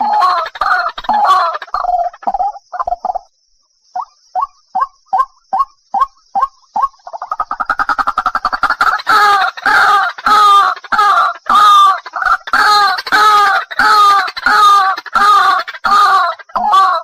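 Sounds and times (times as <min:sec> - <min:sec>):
waterhen croaking call: 0:00.0 - 0:03.2, 0:04.0 - 0:17.0.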